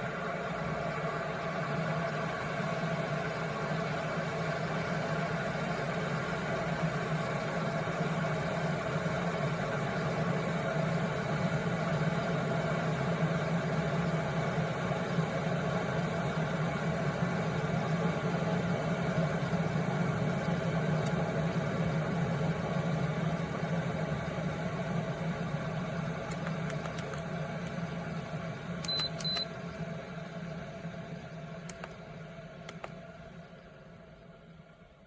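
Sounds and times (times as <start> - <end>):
kettle rumbling: 25.1 - 29.4
short high beeps: 28.9 - 29.4.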